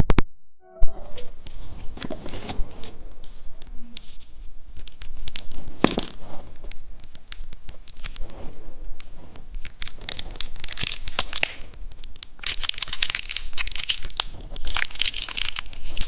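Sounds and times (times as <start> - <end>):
loud wrapper snap: 9.6 - 16.0
plastic wrapper crinkling: 12.2 - 16.0.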